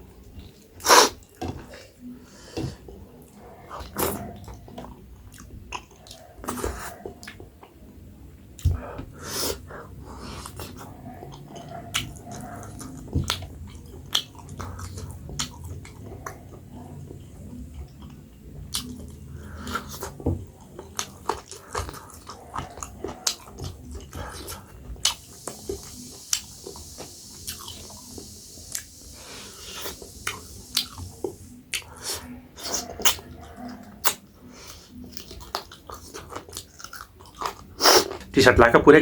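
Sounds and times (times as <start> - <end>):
person chewing and smacking lips: 10.2 - 38.3.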